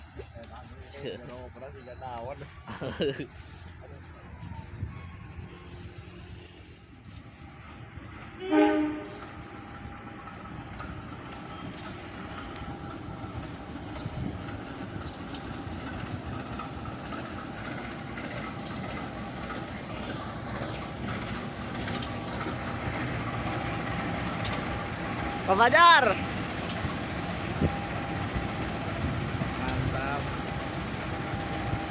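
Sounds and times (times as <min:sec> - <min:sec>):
train wheels rumbling on rails: 0:00.0 - 0:31.9
train horn: 0:08.4 - 0:09.3.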